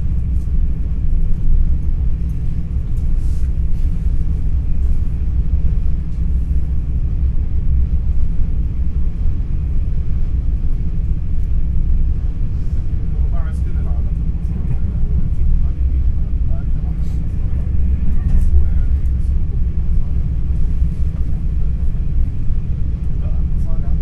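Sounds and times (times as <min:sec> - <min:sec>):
electric train rumbling: 0:00.0 - 0:24.0.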